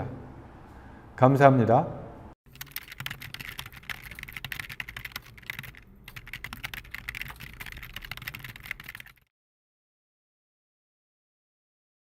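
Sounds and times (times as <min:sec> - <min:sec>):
computer keyboard typing: 0:02.5 - 0:09.3.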